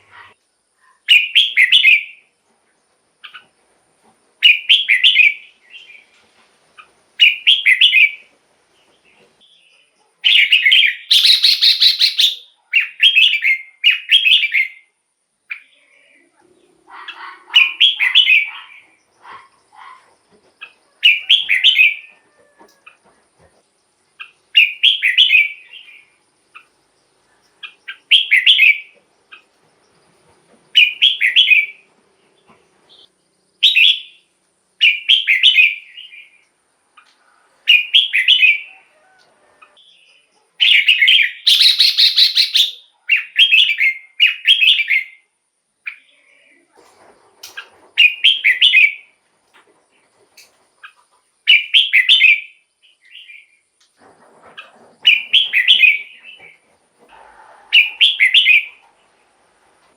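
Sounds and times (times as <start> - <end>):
bulbul singing warbled phrases: 10.3 - 14.8, 15.5 - 20.2, 40.0 - 45.1.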